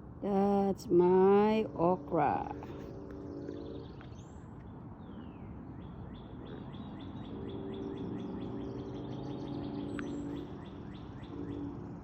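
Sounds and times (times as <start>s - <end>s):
bird chirping: 2.7s - 12.0s.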